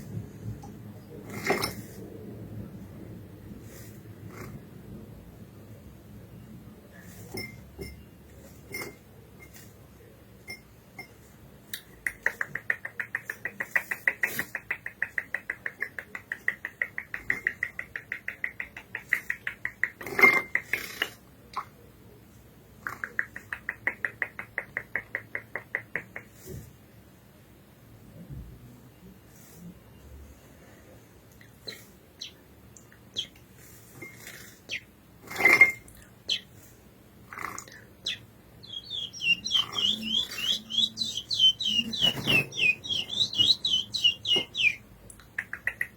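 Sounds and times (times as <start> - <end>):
finch ticking calls: 31.7 - 32.4, 36.3 - 36.5, 38.0 - 44.8.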